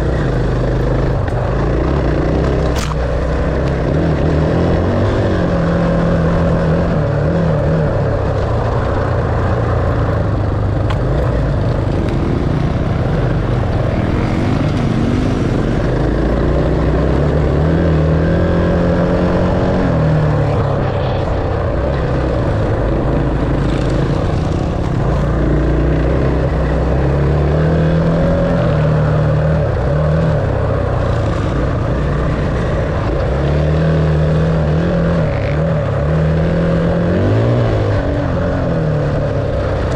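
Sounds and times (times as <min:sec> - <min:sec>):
dirt bike engine revving: 0:09.4 - 0:38.4.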